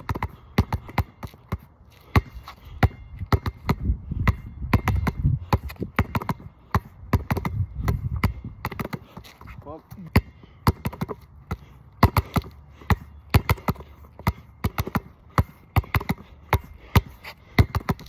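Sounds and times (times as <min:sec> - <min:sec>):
basketball bouncing on wet court: 0:00.0 - 0:18.0.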